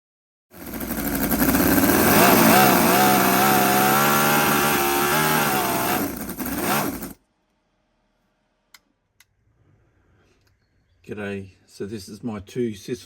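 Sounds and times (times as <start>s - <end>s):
model engine running: 0.5s - 7.2s.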